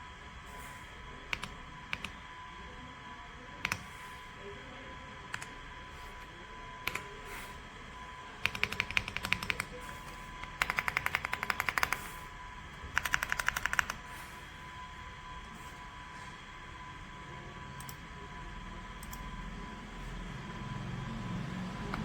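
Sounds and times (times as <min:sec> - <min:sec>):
mechanical keyboard typing: 0:01.3 - 0:02.2, 0:03.6 - 0:03.9, 0:05.3 - 0:05.5, 0:06.8 - 0:07.1, 0:08.4 - 0:09.8, 0:10.4 - 0:12.2, 0:12.9 - 0:14.0.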